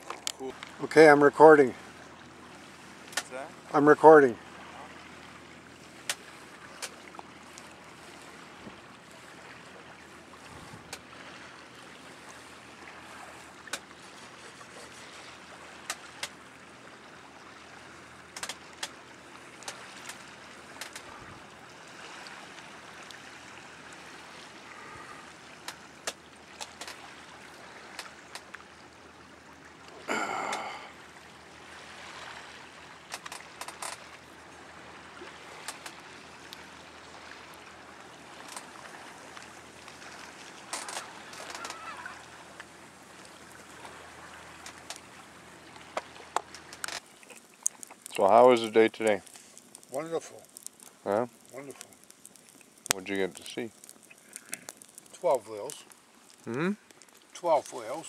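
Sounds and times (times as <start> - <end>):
small splashes and clicks: 0.0 - 0.8, 3.0 - 3.5, 6.0 - 9.6, 10.4 - 11.1, 12.0 - 16.4, 18.3 - 21.2, 21.9 - 28.8, 32.0 - 34.4, 35.1 - 58.0
water lapping around kayak: 0.0 - 58.0.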